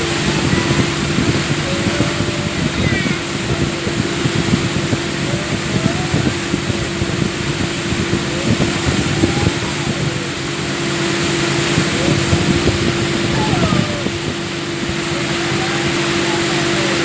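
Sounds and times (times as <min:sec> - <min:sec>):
short low thumps: 0:00.0 - 0:16.2
motorboat engine humming: 0:00.0 - 0:17.0
water and wind rushing: 0:00.0 - 0:17.0.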